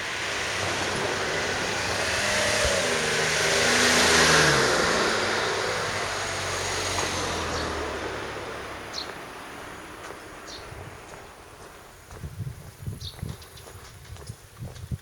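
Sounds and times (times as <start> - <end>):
car passing by: 0.0 - 11.6.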